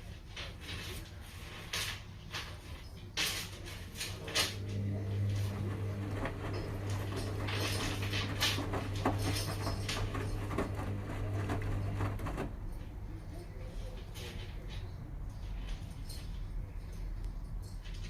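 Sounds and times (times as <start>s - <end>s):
washing machine motor hum: 4.0s - 15.1s.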